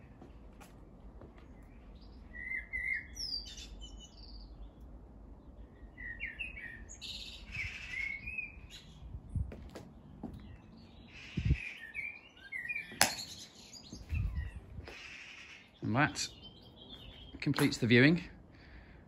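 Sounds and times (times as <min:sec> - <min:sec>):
birds chirping and whistling: 0:02.0 - 0:04.6, 0:05.8 - 0:09.1, 0:10.1 - 0:17.9
faint low rumble: 0:06.9 - 0:11.6.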